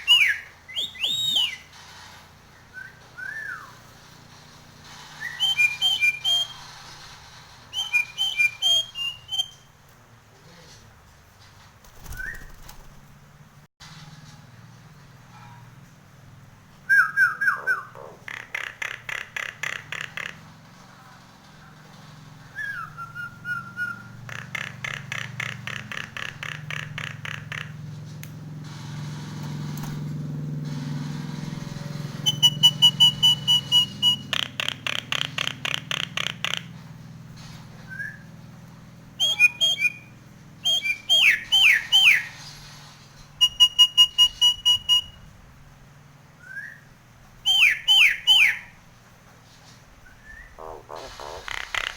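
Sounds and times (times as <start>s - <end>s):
myna bird whistling: 0.0s - 1.7s, 2.6s - 3.8s, 5.1s - 6.9s, 7.7s - 9.7s, 12.0s - 12.6s, 16.9s - 18.0s, 22.5s - 27.7s, 32.2s - 36.7s, 37.8s - 38.3s, 39.2s - 42.5s, 43.4s - 45.2s, 46.4s - 48.8s, 50.0s - 51.9s.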